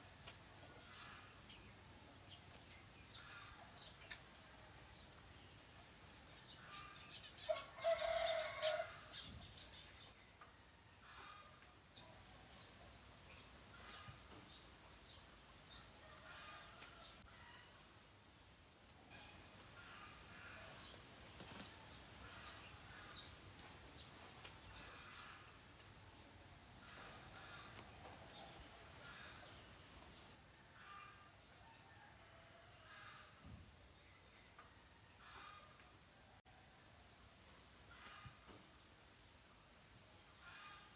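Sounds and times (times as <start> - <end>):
insects chirring: 0.0 - 11.6, 12.2 - 31.3
rooster crowing: 7.4 - 9.2.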